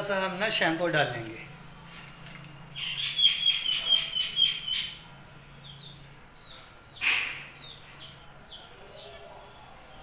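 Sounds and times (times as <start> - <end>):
bird chirping: 2.4 - 10.0.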